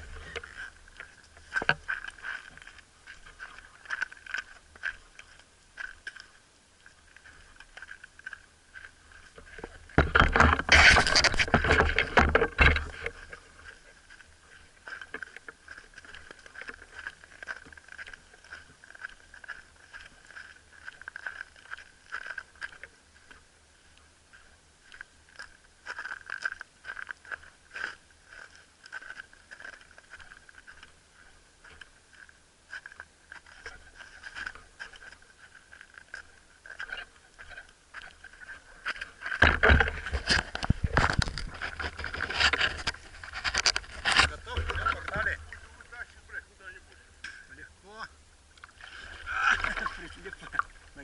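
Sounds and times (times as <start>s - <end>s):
faint steady whine: 0.0s - 51.0s
handling clicks and scraping: 7.2s - 14.3s, 32.8s - 46.0s
rumbling and knocking noise: 9.6s - 13.4s.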